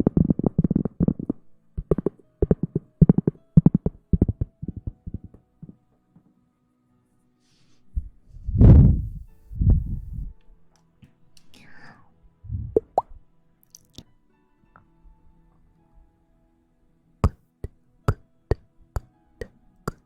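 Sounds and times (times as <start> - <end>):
low muffled thumps: 8.0 - 10.4.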